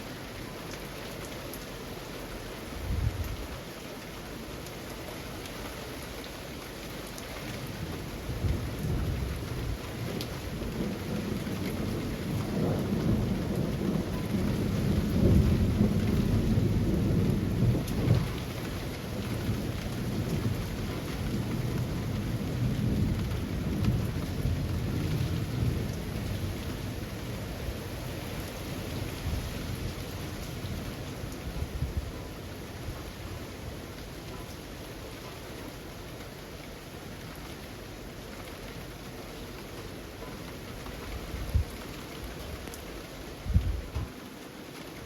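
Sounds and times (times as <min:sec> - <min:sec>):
rain falling through foliage: 0:00.0 - 0:45.0
low rumble of thunder: 0:02.7 - 0:03.6, 0:07.6 - 0:34.1, 0:40.5 - 0:44.2.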